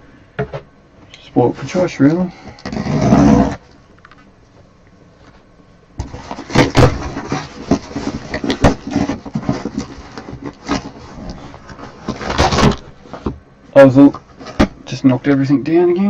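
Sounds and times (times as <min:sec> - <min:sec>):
rustling and crinkling of wrapping: 0:05.2 - 0:14.9.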